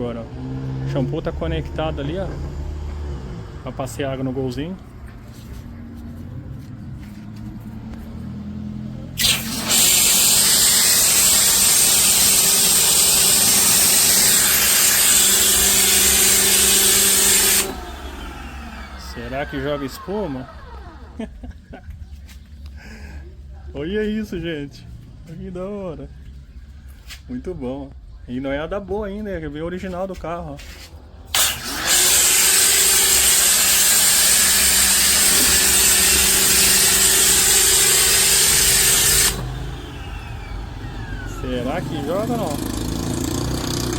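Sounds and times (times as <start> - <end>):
pressure washer spray hissing: 9.2 - 17.8, 31.4 - 39.6
pump motor humming: 9.2 - 21.2, 31.3 - 43.9.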